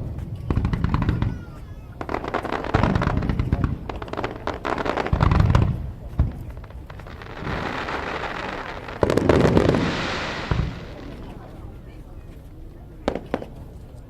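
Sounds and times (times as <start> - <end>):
loud firework burst: 0.0 - 11.4
fireworks crackling pops: 0.0 - 11.6, 13.0 - 14.0
deep firework boom: 2.1 - 11.4.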